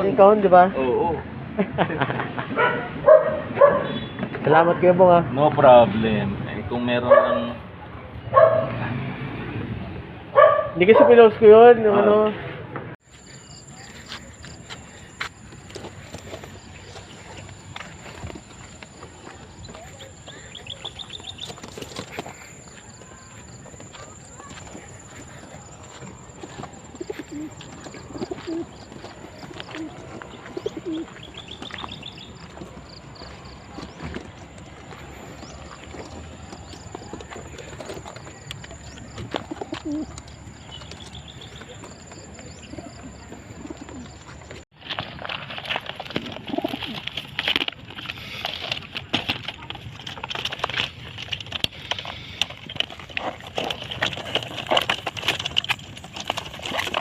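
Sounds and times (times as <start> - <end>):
pigeons cooing: 23.8 - 44.6, 46.0 - 48.8.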